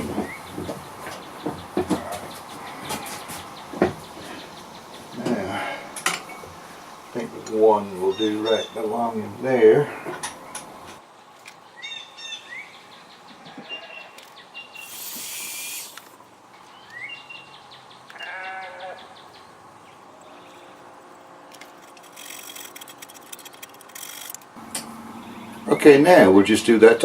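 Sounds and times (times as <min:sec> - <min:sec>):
brief hiss: 0:14.8 - 0:16.2.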